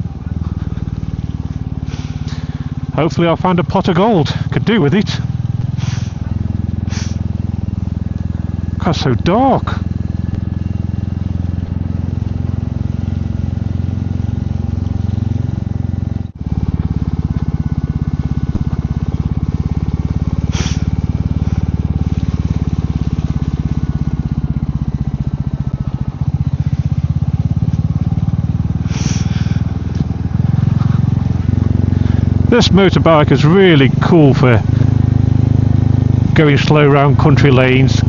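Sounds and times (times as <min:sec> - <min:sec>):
motorcycle engine running: 0:00.0 - 0:38.0
short hissing sounds: 0:05.7 - 0:06.2, 0:06.8 - 0:07.3, 0:20.5 - 0:20.9, 0:28.9 - 0:29.3.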